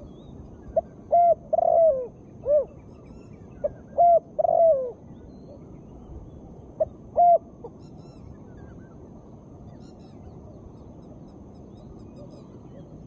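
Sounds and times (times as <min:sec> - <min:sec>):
faint steady hiss: 0:00.0 - 0:13.0
dove cooing: 0:00.8 - 0:02.8, 0:03.6 - 0:05.0, 0:06.8 - 0:07.5.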